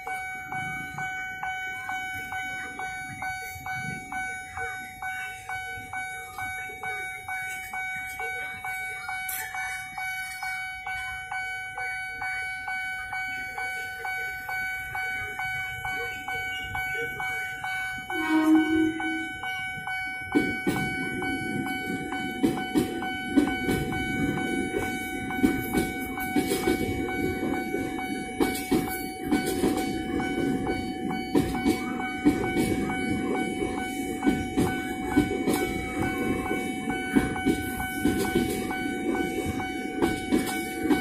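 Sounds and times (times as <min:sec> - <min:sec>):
level crossing bell chiming: 0:00.0 - 0:41.0
train wheels rumbling on rails: 0:00.0 - 0:41.0
train horn blast: 0:18.1 - 0:19.3.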